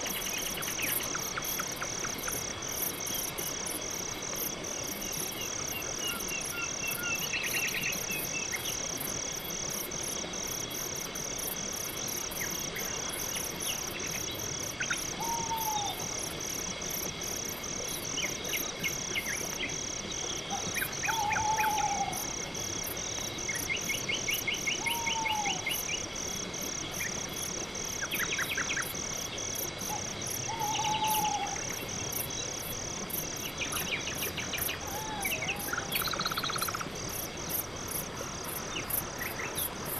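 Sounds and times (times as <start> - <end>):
crickets chirping: 0.0 - 39.9
insect pulsing: 0.0 - 39.9.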